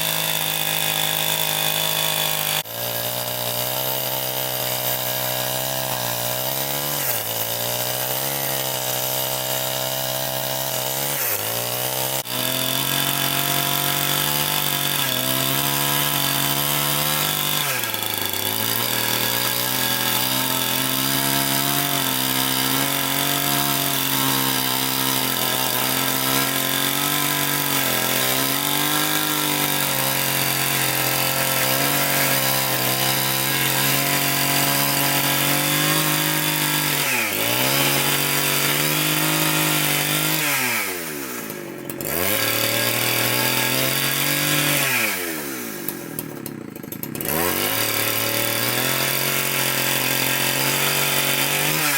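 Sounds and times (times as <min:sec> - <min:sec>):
chainsaw cutting wood: 0:00.0 - 0:51.9.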